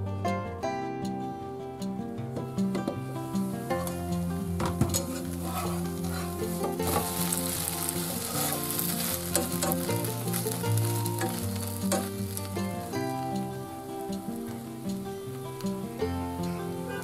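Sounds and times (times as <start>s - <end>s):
flatbread sizzling in oil: 3.1s - 17.0s
metal spatula scraping pan: 3.7s - 12.9s.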